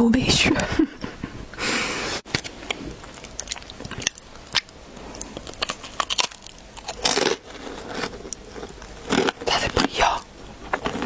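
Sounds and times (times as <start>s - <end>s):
person biting and chewing pastry: 2.3s - 11.0s.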